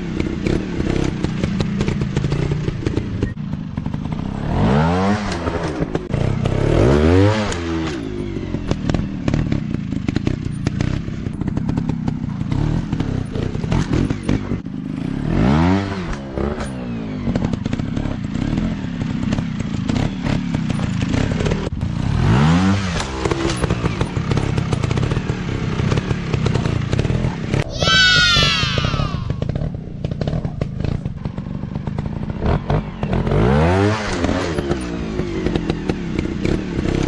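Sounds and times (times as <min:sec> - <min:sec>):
dirt bike engines revving: 0:27.5 - 0:29.5.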